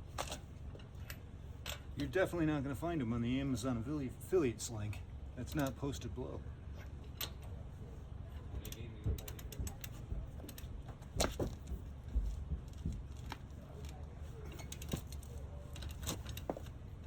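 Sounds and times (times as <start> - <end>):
metal tools clicking and knocking: 8.6 - 11.7, 12.7 - 16.8.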